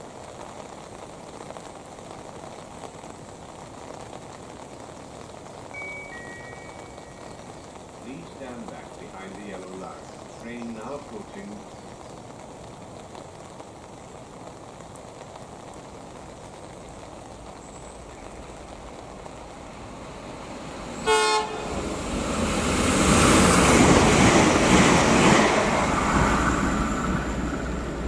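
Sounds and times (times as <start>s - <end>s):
train rushing past: 19.6s - 28.0s
train horn blast: 21.0s - 21.8s.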